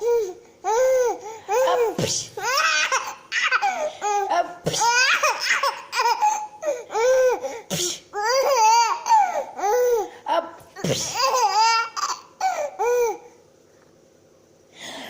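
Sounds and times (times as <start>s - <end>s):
baby laughing: 0.7s - 7.4s, 8.2s - 10.1s, 11.0s - 13.2s.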